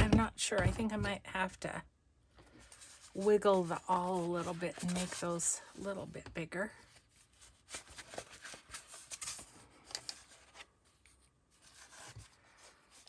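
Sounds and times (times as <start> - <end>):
awl scratching through paper: 2.6 - 5.7.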